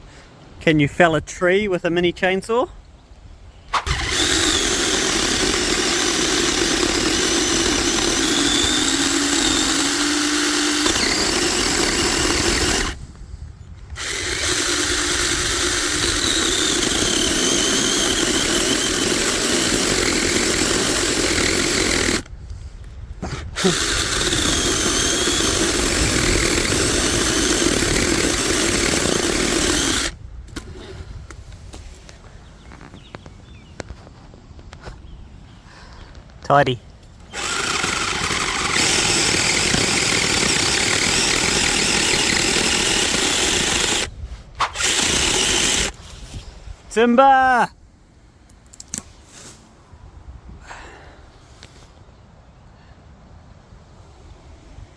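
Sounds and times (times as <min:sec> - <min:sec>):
chainsaw cutting wood: 0:03.8 - 0:13.1, 0:13.9 - 0:22.3, 0:23.2 - 0:30.7, 0:37.2 - 0:46.0.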